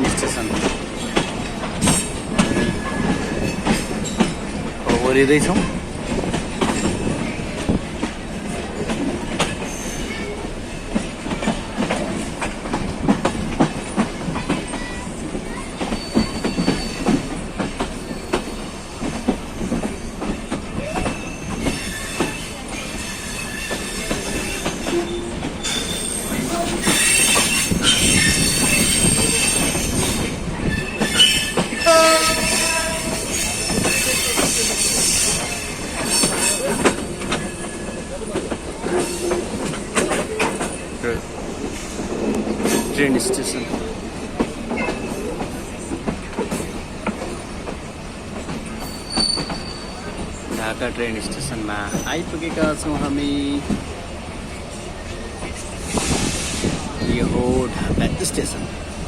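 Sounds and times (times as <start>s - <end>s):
train wheels clattering over rail joints: 0.0s - 59.0s
wheel and brake squeal: 9.6s - 10.4s, 15.8s - 17.2s, 18.0s - 18.6s, 20.8s - 38.1s, 48.7s - 50.3s.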